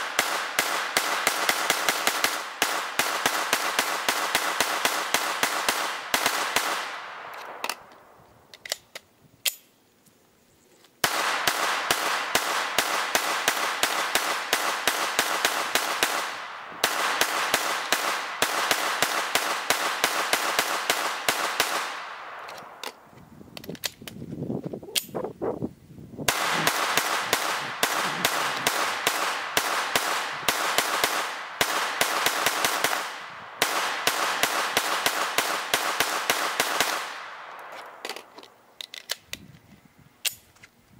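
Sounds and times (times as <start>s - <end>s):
rifle firing rapid shots: 0.0s - 7.7s, 11.0s - 22.5s, 26.3s - 37.6s
magazine handling clicks: 7.2s - 9.7s, 23.6s - 24.2s, 37.4s - 39.5s, 40.2s - 40.7s.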